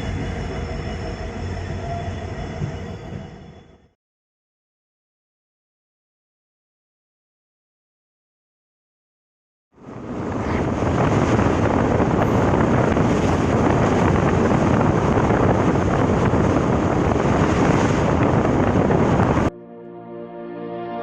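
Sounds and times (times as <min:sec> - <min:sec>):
moving train rushing: 0:00.0 - 0:04.0, 0:09.8 - 0:19.5
wind buffeting microphone: 0:09.8 - 0:19.5.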